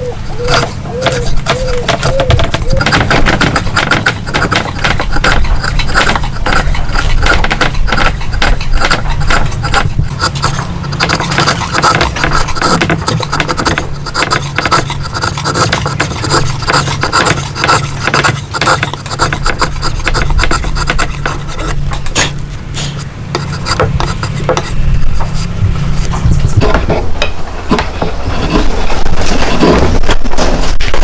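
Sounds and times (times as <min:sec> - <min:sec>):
hand tool scraping wood: 0:00.0 - 0:31.0
steady low hum: 0:00.0 - 0:31.0.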